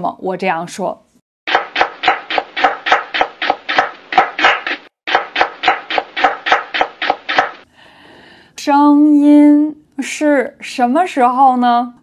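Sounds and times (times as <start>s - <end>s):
knife chopping on cutting board: 1.5s - 7.6s.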